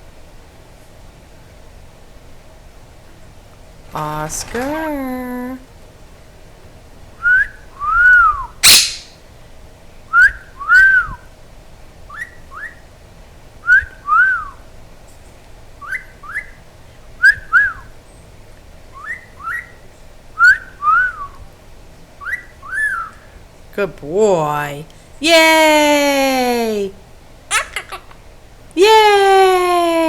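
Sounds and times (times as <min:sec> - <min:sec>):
parrot wolf whistle: 0:07.2 - 0:09.2, 0:10.1 - 0:11.3, 0:12.1 - 0:12.9, 0:13.6 - 0:14.6, 0:15.8 - 0:16.6, 0:17.2 - 0:17.9, 0:19.0 - 0:19.8, 0:20.4 - 0:21.4, 0:22.2 - 0:23.3.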